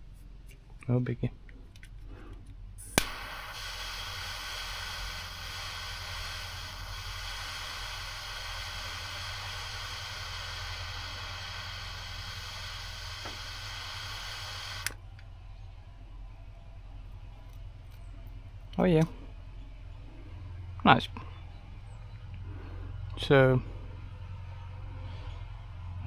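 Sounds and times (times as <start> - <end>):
sharp switch clicks: 2.8 - 5.4
steady hiss: 2.8 - 15.0.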